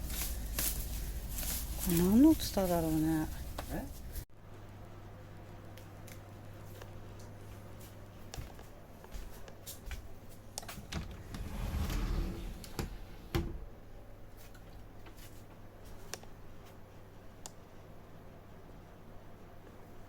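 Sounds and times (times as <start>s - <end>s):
foliage rustling: 0.0s - 4.2s.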